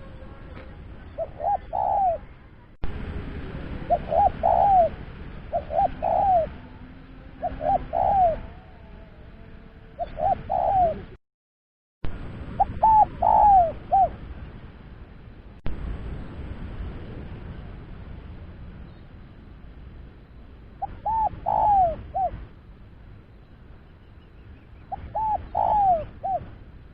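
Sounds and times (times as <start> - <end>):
dove cooing: 0.0 - 2.5, 3.6 - 9.4, 10.0 - 11.2, 12.6 - 14.2, 20.8 - 22.4, 24.8 - 26.6
background hiss: 12.1 - 26.9.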